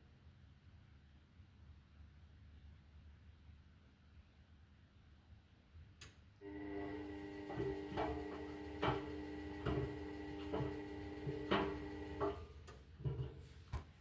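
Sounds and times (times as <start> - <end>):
washing machine motor humming: 6.4 - 13.3
washing machine drum knocking: 7.1 - 13.3.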